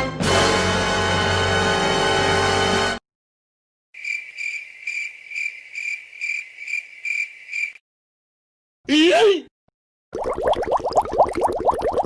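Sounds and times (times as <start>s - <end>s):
crickets chirping: 4.0s - 7.8s.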